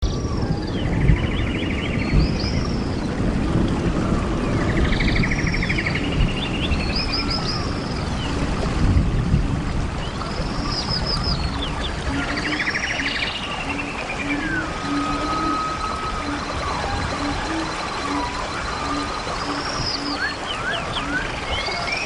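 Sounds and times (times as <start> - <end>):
bird singing trills: 0.0 - 3.3, 3.9 - 8.4, 10.0 - 22.0
distant waterfall rushing: 0.1 - 22.0.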